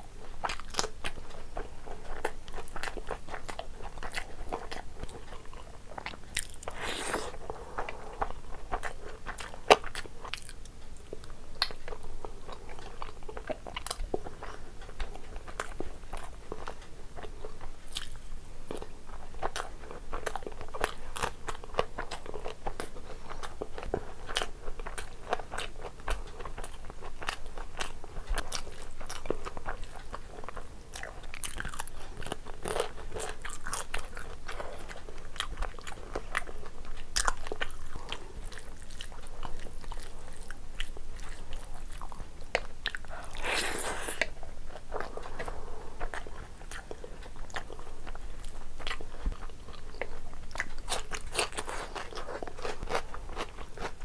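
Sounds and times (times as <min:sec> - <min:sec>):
wet chewing and mouth clicks: 0:00.3 - 0:54.0.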